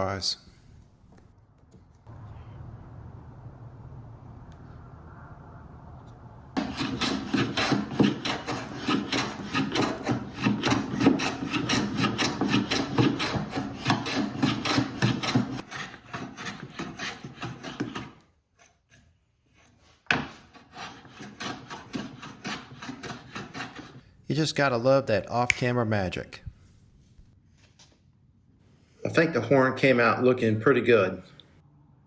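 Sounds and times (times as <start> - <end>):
rasping strokes on wood: 6.6 - 24.0
scrape or knock: 6.6 - 24.0.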